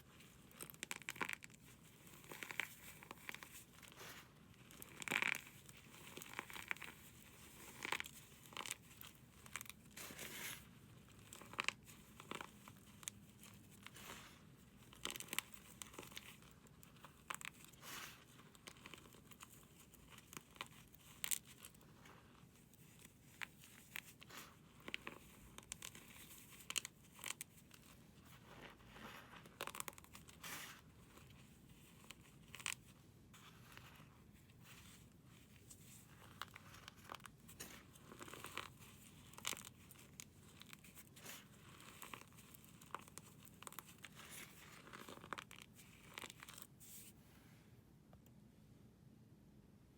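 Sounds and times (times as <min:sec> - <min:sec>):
dry material crunching by hand: 0:35.6 - 0:47.1.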